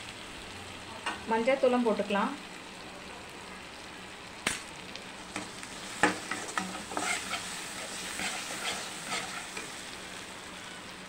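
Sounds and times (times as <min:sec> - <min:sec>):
onions and tomatoes sizzling: 0:00.0 - 0:11.0
ladle scraping and knocking pan: 0:05.4 - 0:09.7.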